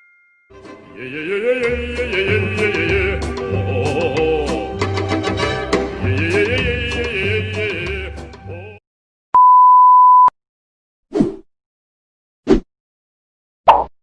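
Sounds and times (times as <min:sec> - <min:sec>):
music: 0:00.4 - 0:08.8
censor bleep: 0:09.4 - 0:10.4.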